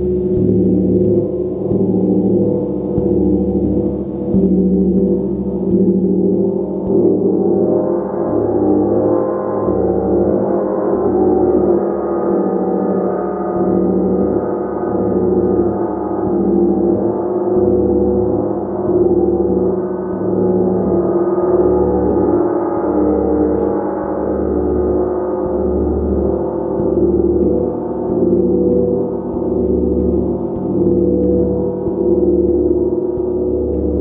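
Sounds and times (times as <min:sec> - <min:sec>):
large gong shimmering: 0:00.0 - 0:19.5.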